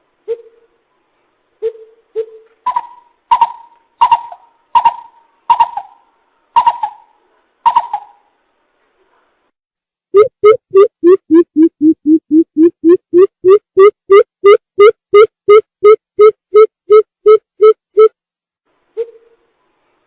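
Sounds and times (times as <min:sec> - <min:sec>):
bird deep hooting calls: 0:01.6 - 0:06.0.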